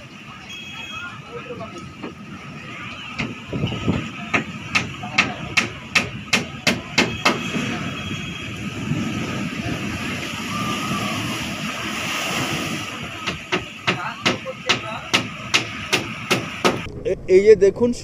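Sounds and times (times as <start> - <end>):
steady rushing noise: 1.1 - 18.0
sharp knocks: 3.2 - 7.4, 13.2 - 16.9.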